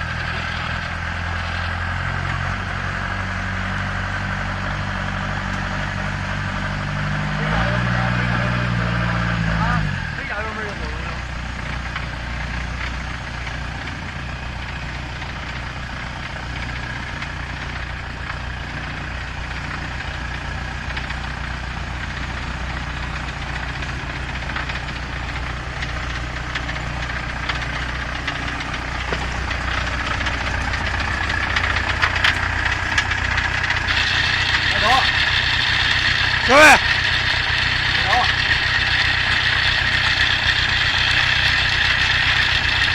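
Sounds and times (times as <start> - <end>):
dumper engine running: 0.0 - 42.9.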